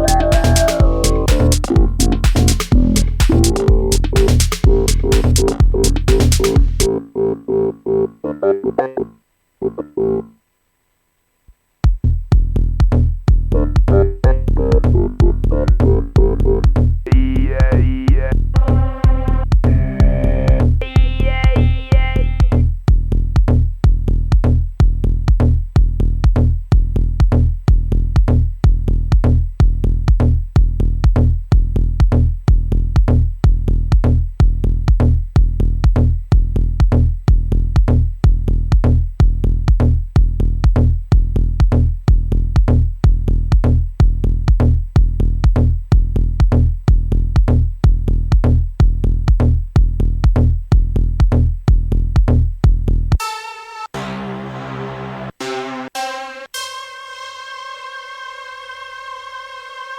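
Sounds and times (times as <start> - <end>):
kick drum beat: 0.0 - 6.9, 11.8 - 53.2
deep bass: 0.0 - 8.8, 11.8 - 53.2
synth chord: 53.2 - 59.9.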